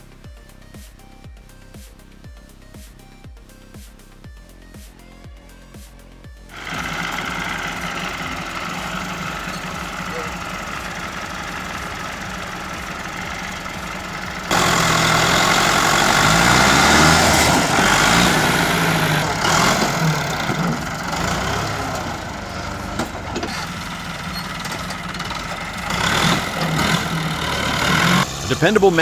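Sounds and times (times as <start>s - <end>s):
vehicle engine running: 0.0s - 29.0s
engine revving under load: 6.5s - 29.0s.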